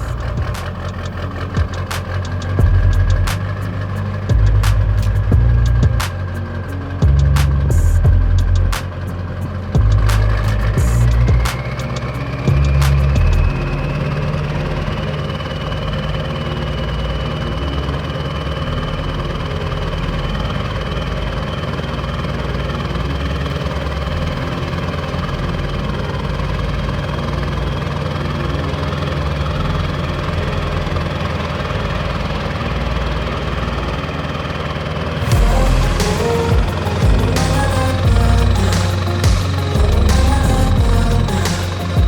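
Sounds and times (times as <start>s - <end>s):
vehicle engine running: 0.0s - 42.0s
thin high whine: 35.2s - 42.0s.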